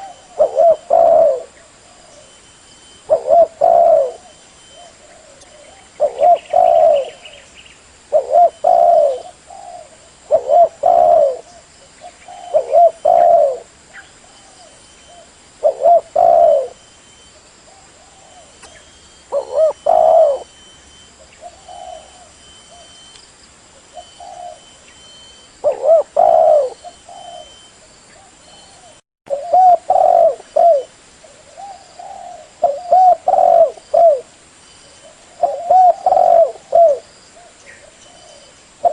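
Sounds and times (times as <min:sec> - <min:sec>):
dove cooing: 0:00.0 - 0:02.4, 0:03.0 - 0:07.5, 0:08.1 - 0:16.8, 0:17.4 - 0:20.6, 0:21.2 - 0:23.1, 0:23.8 - 0:34.3, 0:34.9 - 0:38.9.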